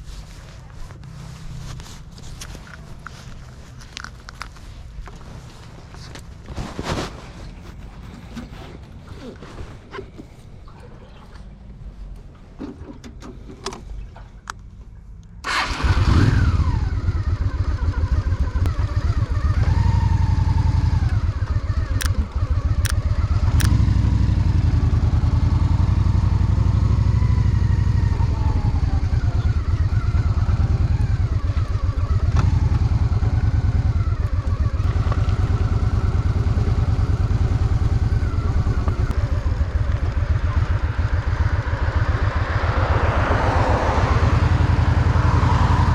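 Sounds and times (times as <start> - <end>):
motorcycle engine starting and running: 15.4 - 45.9.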